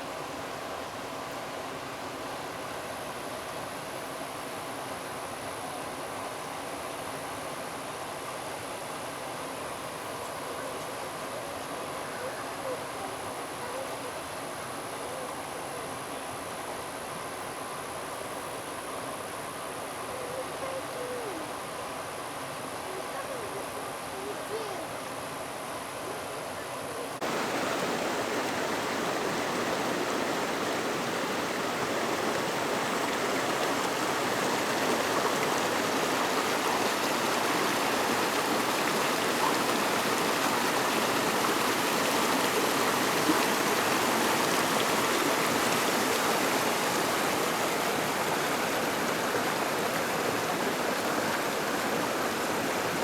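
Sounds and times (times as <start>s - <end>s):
rushing river water: 0.0s - 53.0s.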